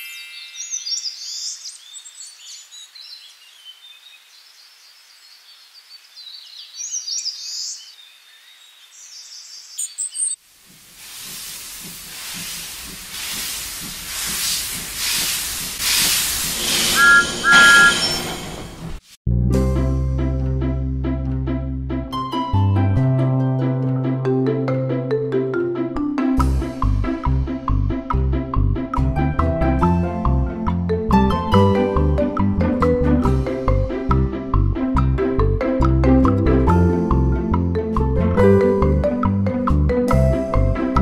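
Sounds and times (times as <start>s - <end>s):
train running with hiss: 10.5s - 19.1s
train whistle toots: 16.7s - 18.4s
music: 19.3s - 41.0s.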